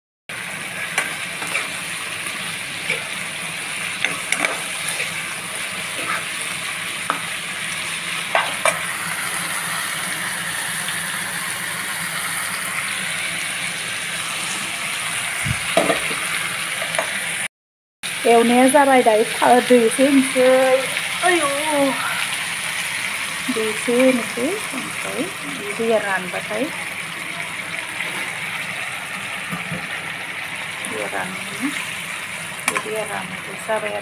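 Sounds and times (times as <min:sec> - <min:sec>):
curry sizzling in a frying pan: 0:00.3 - 0:17.5, 0:18.1 - 0:34.0
spatula scraping a pan: 0:00.9 - 0:01.8, 0:04.0 - 0:05.3, 0:05.9 - 0:06.4.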